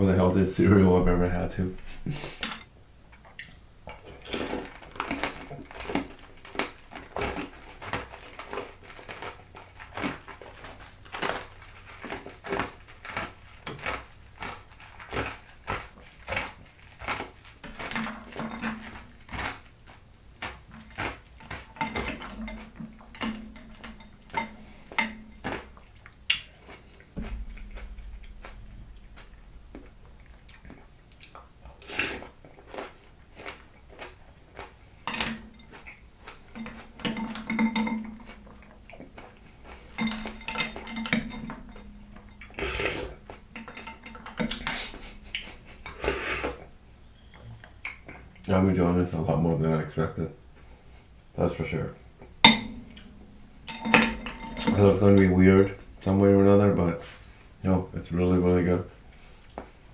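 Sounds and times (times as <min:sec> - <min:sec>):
spoon clinking in a bowl: 0:52.4 - 0:54.8.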